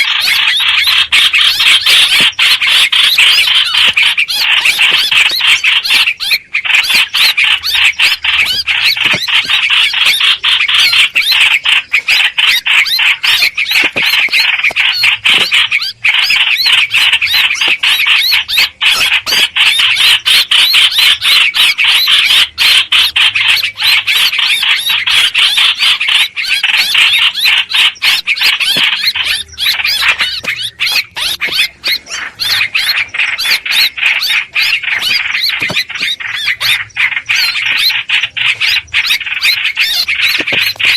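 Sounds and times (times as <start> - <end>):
birds chattering calls: 0.0 - 40.9.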